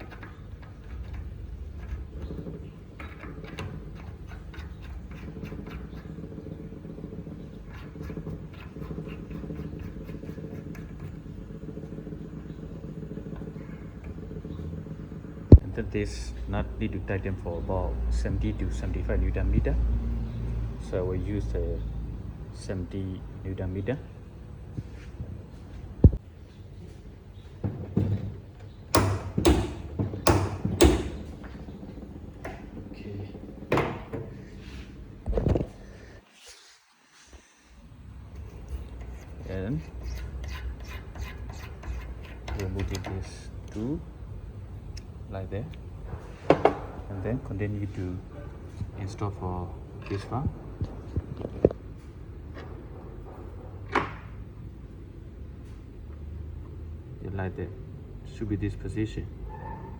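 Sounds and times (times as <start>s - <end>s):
torque wrench metal knocks: 0.0s - 11.9s, 27.7s - 34.4s, 38.3s - 43.8s
machine droning: 0.0s - 24.8s, 26.0s - 36.2s, 37.4s - 48.8s.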